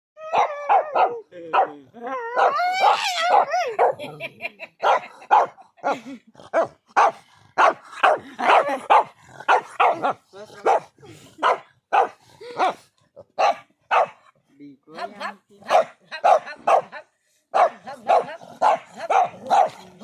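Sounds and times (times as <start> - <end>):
dog drawn-out cries: 0.2 - 4.0
dog barking: 0.3 - 1.8, 2.4 - 4.2, 4.8 - 12.8, 13.4 - 14.3, 15.2 - 20.0.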